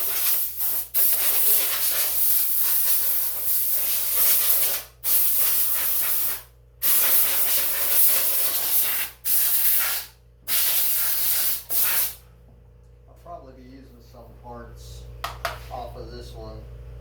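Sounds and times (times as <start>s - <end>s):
compressed air blow gun hissing: 0.0s - 12.2s.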